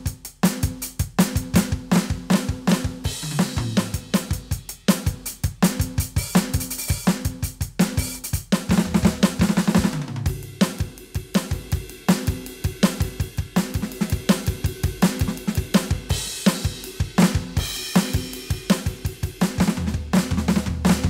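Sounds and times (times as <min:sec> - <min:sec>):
electronic drum groove: 0:00.0 - 0:21.0
cymbal crashes: 0:10.4 - 0:19.4.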